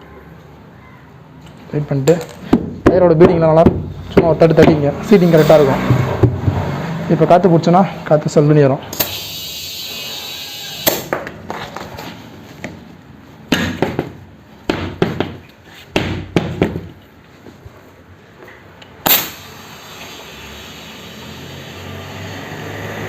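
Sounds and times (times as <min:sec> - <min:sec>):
compressed air hissing into tyre: 0:08.9 - 0:11.1, 0:19.0 - 0:22.8.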